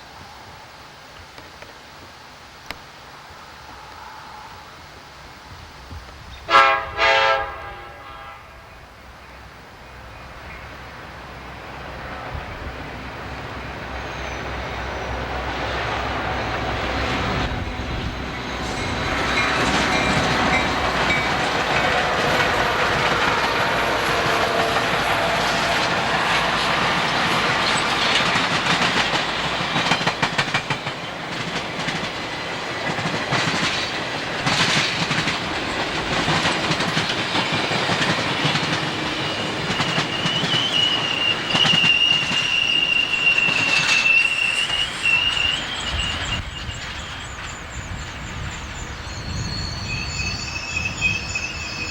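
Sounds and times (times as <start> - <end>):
train rolling past: 0.0 - 51.9
high wheel squeal: 13.6 - 15.2, 38.4 - 51.9
wheels clicking over rail joints: 18.6 - 48.8.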